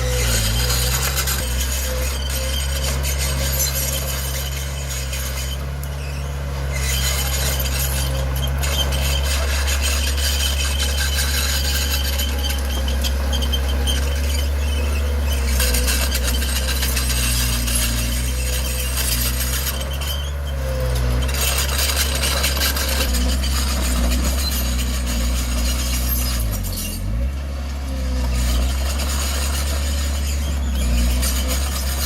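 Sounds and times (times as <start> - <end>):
bulldozer diesel engine running: 0.0 - 32.0
high squealing and scraping: 0.0 - 32.0.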